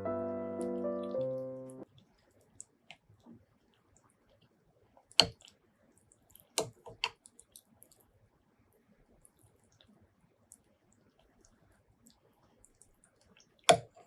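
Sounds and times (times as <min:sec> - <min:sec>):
piano music: 0:00.0 - 0:01.8.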